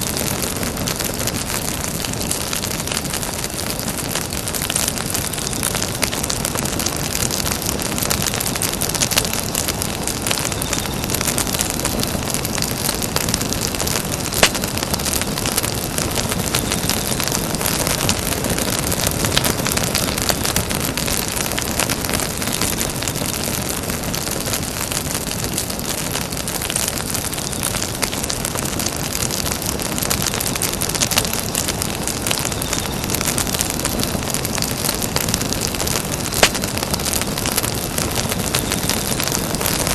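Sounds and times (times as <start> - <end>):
campfire flames hissing: 0.0 - 39.9
fire crackling and popping: 0.0 - 39.9.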